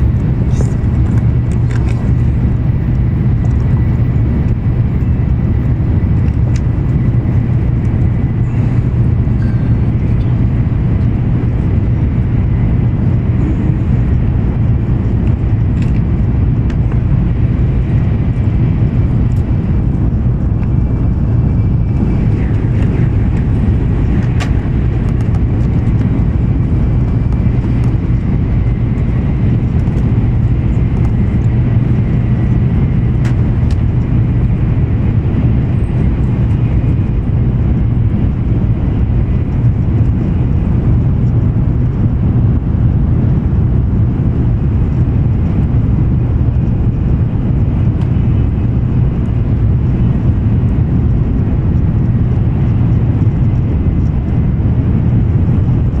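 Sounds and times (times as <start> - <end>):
train running gear rumble: 0.0 - 56.0.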